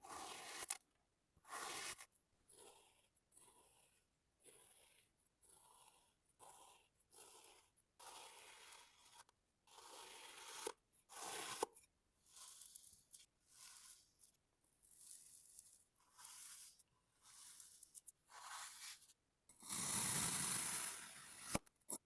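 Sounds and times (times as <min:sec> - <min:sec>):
packed sand being cut: 0:01.4 - 0:02.8, 0:19.6 - 0:21.6.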